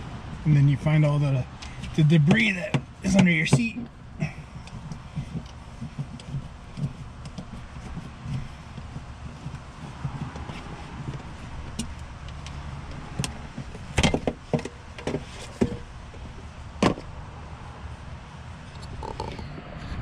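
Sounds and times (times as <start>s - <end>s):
steady low hum: 0.0s - 20.0s
hand tools clicking and knocking: 1.5s - 17.1s.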